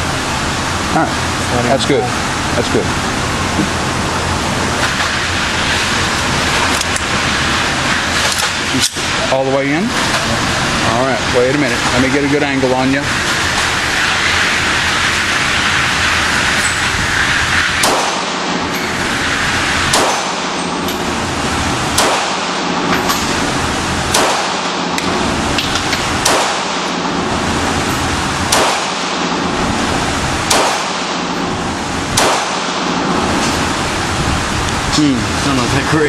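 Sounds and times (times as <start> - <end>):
steady hiss: 0.0 - 36.0
pistol shots: 17.8 - 18.7, 19.9 - 20.8, 21.9 - 23.0, 24.1 - 25.2, 26.2 - 27.2, 28.4 - 29.5, 30.4 - 31.5, 32.1 - 33.3.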